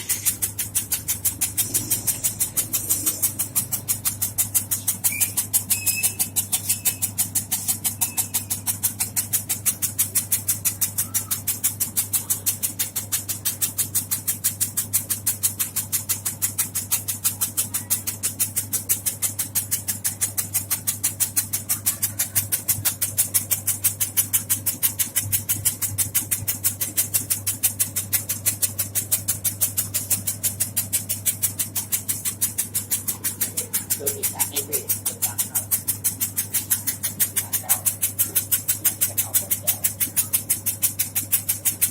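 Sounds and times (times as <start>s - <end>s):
machine chopping rhythm: 0.0s - 41.9s
motor hum: 0.0s - 41.9s.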